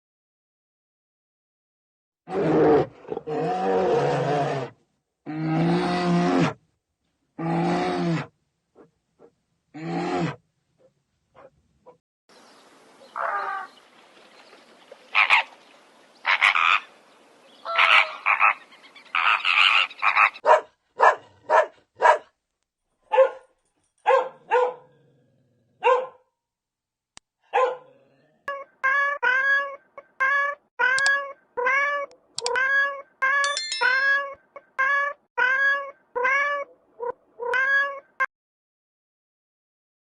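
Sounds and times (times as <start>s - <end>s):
animal calls: 16.2s - 16.9s, 17.6s - 20.6s.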